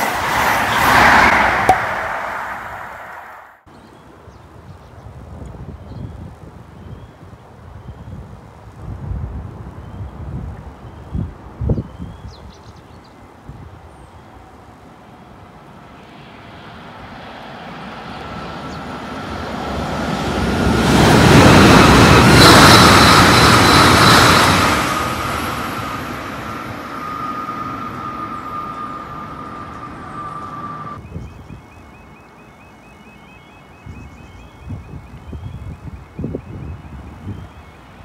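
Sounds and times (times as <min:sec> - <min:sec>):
train passing: 0:00.0 - 0:03.7, 0:14.4 - 0:31.0
steady whine: 0:20.8 - 0:31.0.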